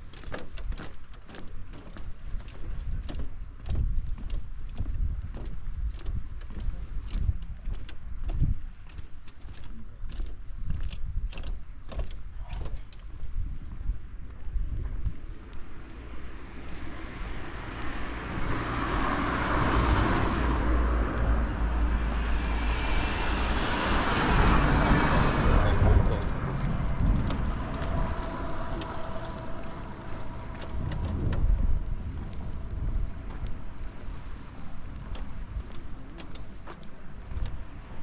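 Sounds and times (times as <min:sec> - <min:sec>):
car passing by: 0:15.8 - 0:35.0.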